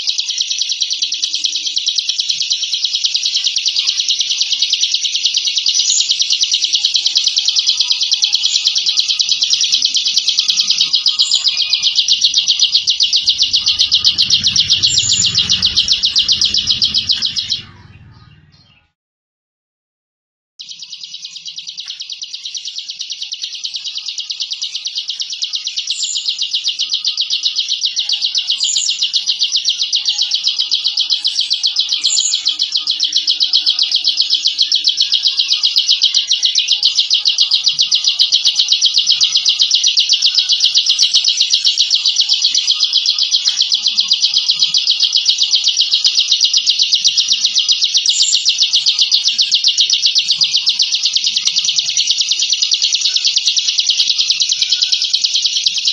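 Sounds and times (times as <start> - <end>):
short high bird chirps: 10.1 - 19.0
bird buzzing trill: 10.7 - 18.6.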